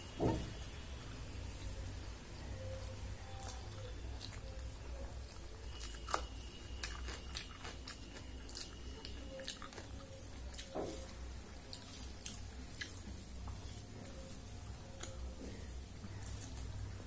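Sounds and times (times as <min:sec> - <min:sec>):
wet chewing and mouth clicks: 0:03.3 - 0:17.0.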